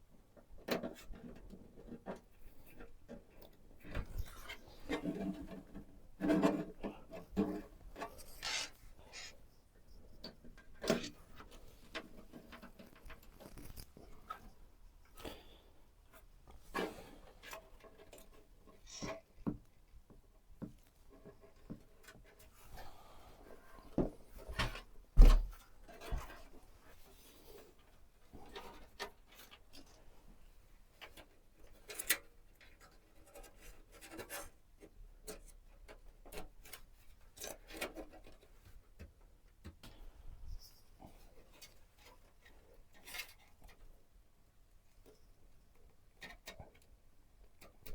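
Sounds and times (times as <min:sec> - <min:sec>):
rubbing: 0:08.0 - 0:09.5.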